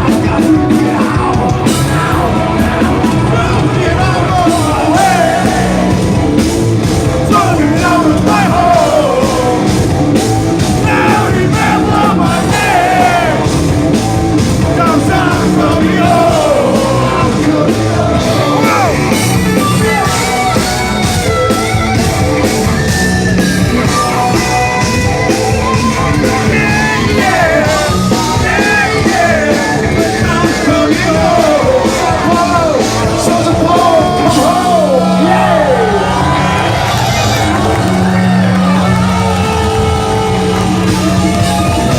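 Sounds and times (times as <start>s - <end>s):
metal band playing loud: 0.0s - 41.9s
person singing: 7.3s - 9.7s, 14.6s - 20.6s, 26.1s - 36.4s.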